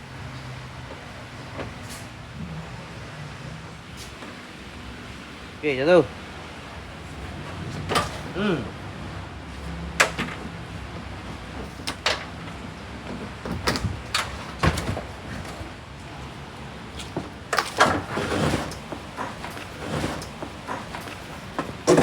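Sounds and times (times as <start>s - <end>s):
rustling scrape: 17.0s - 22.0s.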